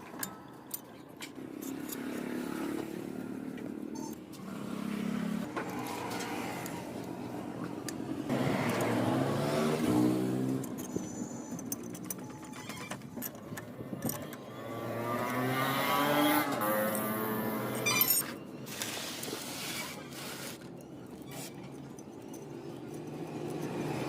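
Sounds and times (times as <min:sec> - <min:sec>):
motorcycle engine revving: 0:08.3 - 0:11.0, 0:14.2 - 0:17.8.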